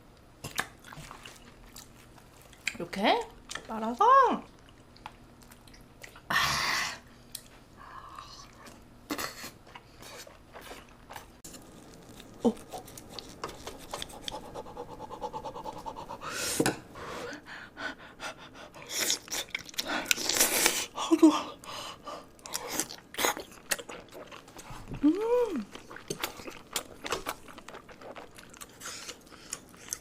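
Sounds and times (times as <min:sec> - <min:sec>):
chewing: 0:00.4 - 0:02.8, 0:04.5 - 0:06.3, 0:08.2 - 0:16.1, 0:18.8 - 0:20.9, 0:22.4 - 0:30.0.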